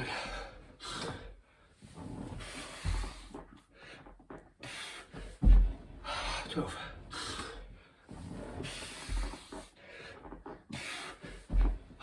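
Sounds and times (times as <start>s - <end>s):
body thudding on floor: 5.2s - 6.0s, 11.2s - 12.0s.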